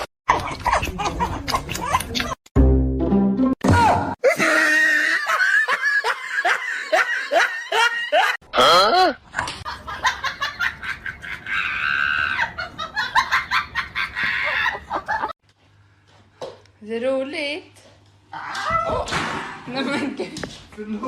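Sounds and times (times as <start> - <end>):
people laughing hard: 0.3 - 2.4, 4.2 - 8.4, 9.6 - 15.4.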